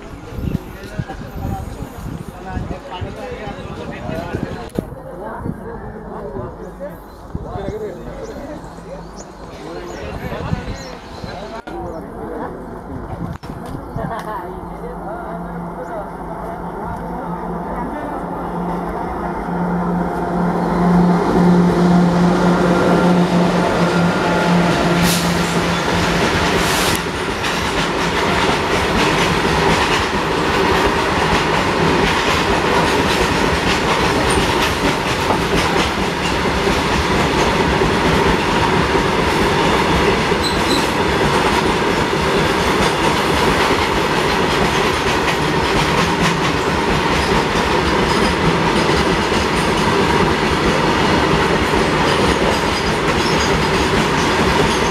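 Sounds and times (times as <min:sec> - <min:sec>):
electric locomotive humming: 0:00.0 - 0:54.9
train wheels clicking over rail joints: 0:24.8 - 0:54.9.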